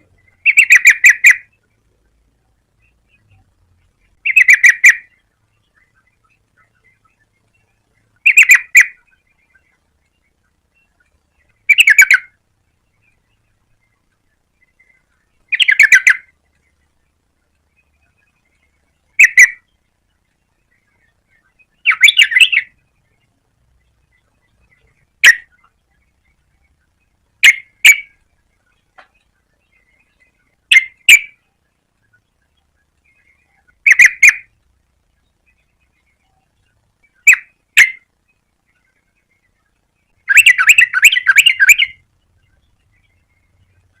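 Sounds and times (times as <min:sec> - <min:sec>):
bird chattering calls: 0:00.0 - 0:01.6, 0:04.1 - 0:07.3, 0:08.2 - 0:09.8, 0:10.9 - 0:12.4, 0:14.6 - 0:16.7, 0:17.8 - 0:19.7, 0:20.7 - 0:22.8, 0:24.1 - 0:32.2, 0:33.0 - 0:34.6, 0:35.4 - 0:42.0.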